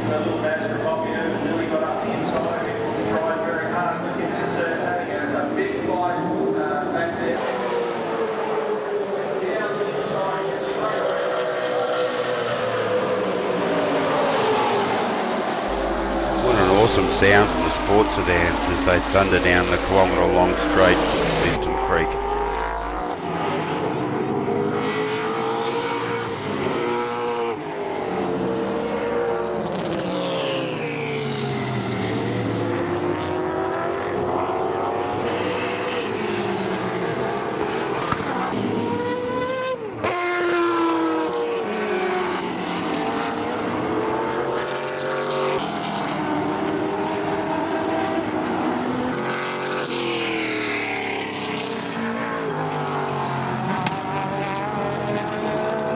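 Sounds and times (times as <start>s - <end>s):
race cars passing: 0.0s - 55.9s.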